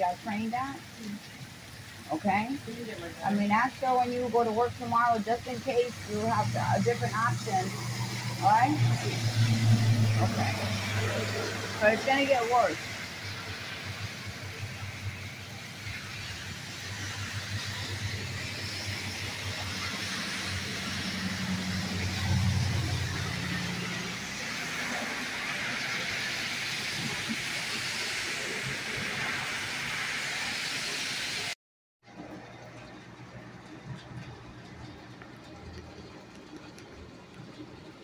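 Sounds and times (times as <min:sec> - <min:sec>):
heavy rain pouring: 0:00.0 - 0:38.0
vehicle passing on flooded street: 0:00.0 - 0:38.0.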